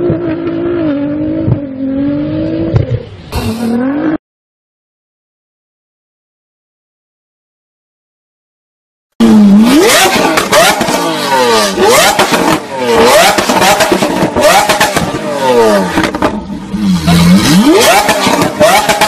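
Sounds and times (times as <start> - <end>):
sports car engine revving: 9.2 - 19.0.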